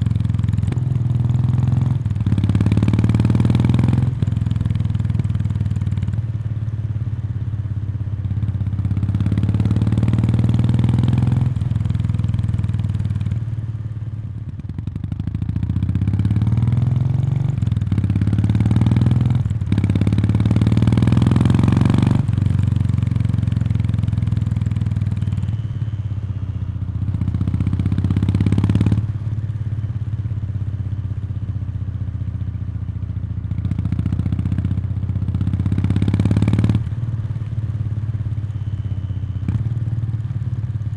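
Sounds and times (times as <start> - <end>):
motorcycle engine revving: 0.0 - 5.9, 9.0 - 13.1, 15.7 - 29.3, 33.6 - 40.5.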